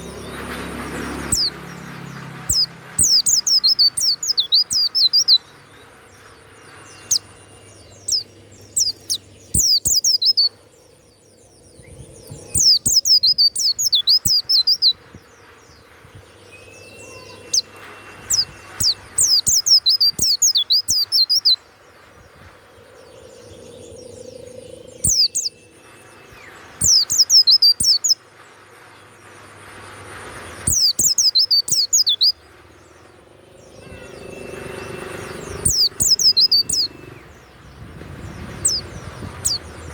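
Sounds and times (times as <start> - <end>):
bird twittering: 1.3 - 1.6, 2.4 - 5.5, 6.9 - 10.6, 12.2 - 15.0, 18.3 - 21.6, 23.2 - 25.6, 26.8 - 28.2, 30.7 - 32.4, 35.5 - 37.1, 38.5 - 39.7.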